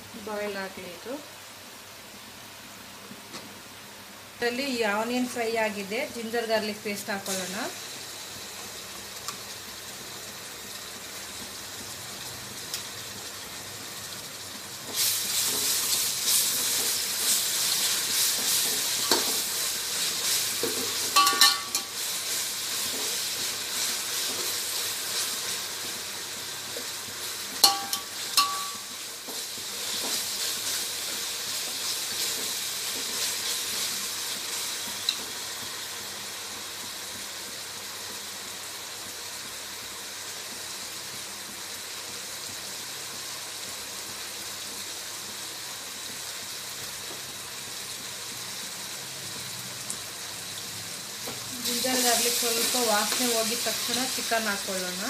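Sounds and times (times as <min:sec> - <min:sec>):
onions sizzling in hot oil: 0:00.0 - 0:55.0
ladle clinking against pot: 0:21.2 - 0:21.9, 0:27.6 - 0:28.8.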